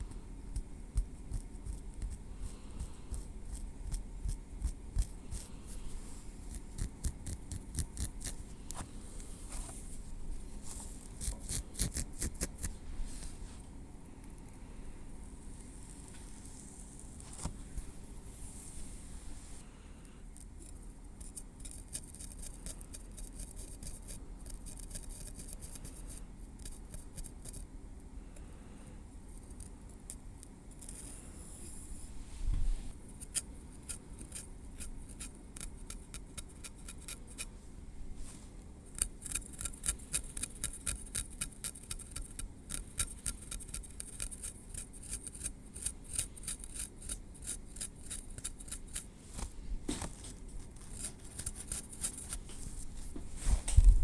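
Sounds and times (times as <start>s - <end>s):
metal tweezers ticking through hair: 6.6s - 8.4s, 38.9s - 49.1s, 50.9s - 52.4s
soft bump: 32.4s - 32.9s.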